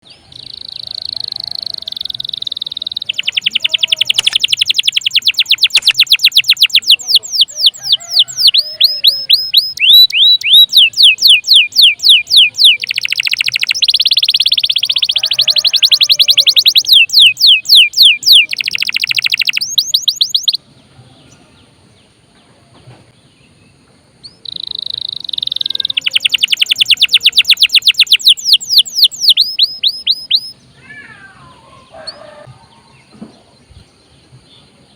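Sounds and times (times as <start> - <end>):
canary singing fast trills: 0.0 - 21.7, 24.2 - 33.1.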